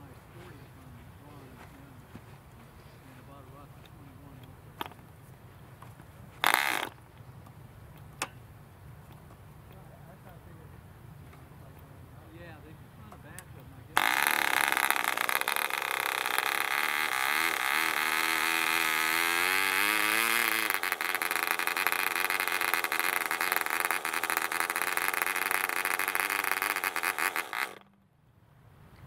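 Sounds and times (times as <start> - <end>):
model diesel engine running: 12.8 - 28.0.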